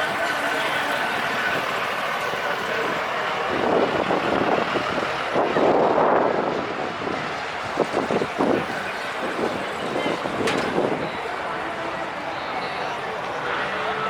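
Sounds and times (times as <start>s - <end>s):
vehicle noise: 0.0s - 14.0s
wind on microphone: 1.2s - 11.2s.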